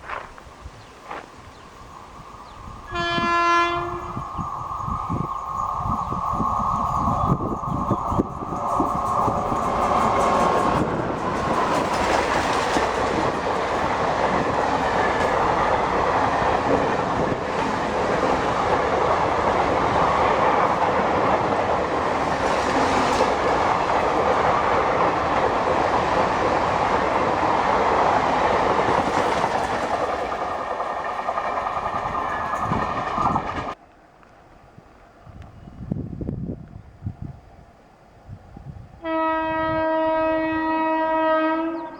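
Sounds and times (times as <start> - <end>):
train passing at speed: 0.0 - 41.9
rail clatter: 3.2 - 33.8.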